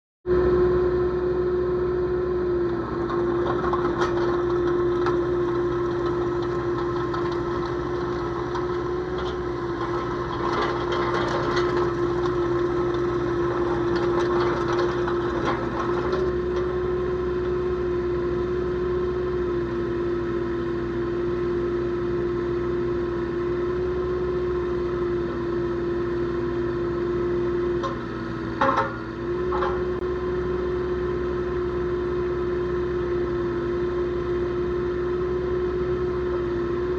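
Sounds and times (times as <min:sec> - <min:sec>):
diesel engine running: 0:00.3 - 0:36.9
machine clattering and knocking: 0:02.8 - 0:16.3, 0:28.6 - 0:30.0.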